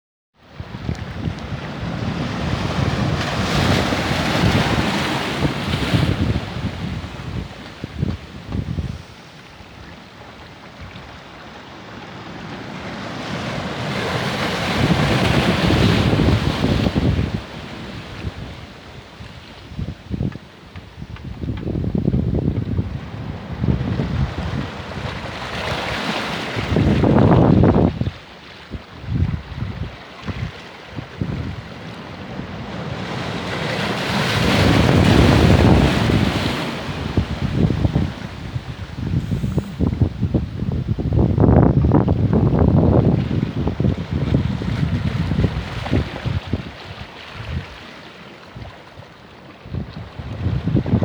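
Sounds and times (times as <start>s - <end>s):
sea surf on a beach: 0.4s - 51.0s
wind buffeting microphone: 0.5s - 47.8s, 48.6s - 51.0s
wave breaking on shore: 0.6s - 18.9s, 30.4s - 41.4s
wave crashing: 34.6s - 41.2s.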